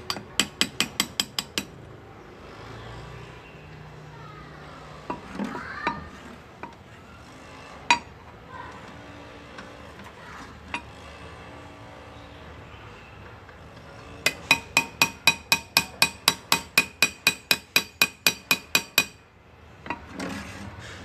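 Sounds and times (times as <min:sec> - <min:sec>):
hammer tapping on graver: 0:00.0 - 0:01.8, 0:14.2 - 0:19.2.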